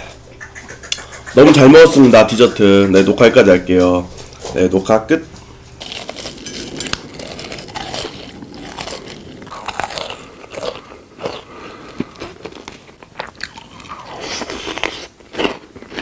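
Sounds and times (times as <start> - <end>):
chewing crunchy food: 5.8 - 16.0.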